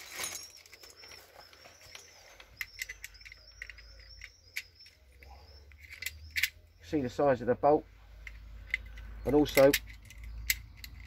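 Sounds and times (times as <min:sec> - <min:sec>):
plastic bag rustling: 0:00.0 - 0:01.5
lock clicking: 0:02.0 - 0:06.7.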